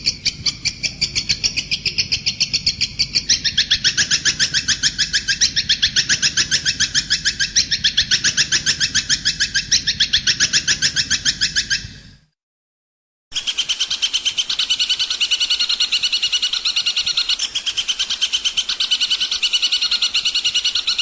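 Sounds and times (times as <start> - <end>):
songbird chattering song: 0.0 - 12.0, 13.3 - 21.0.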